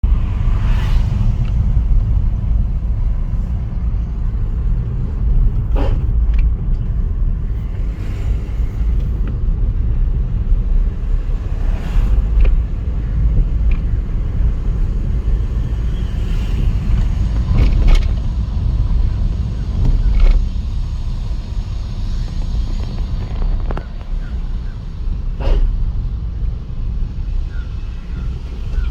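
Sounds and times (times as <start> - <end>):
diesel engine low rumble: 0.0 - 28.9
gearbox grinding: 16.6 - 20.9, 22.1 - 26.0.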